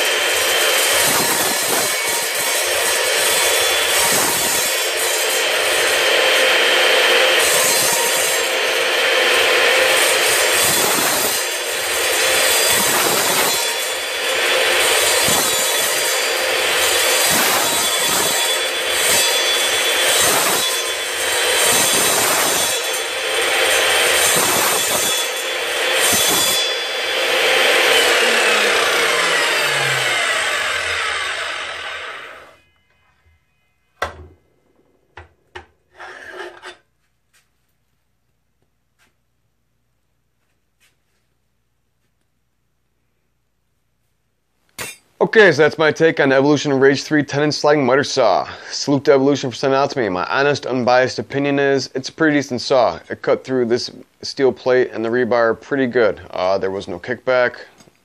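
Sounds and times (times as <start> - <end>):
miter saw cutting: 0.0 - 34.2, 35.9 - 36.9.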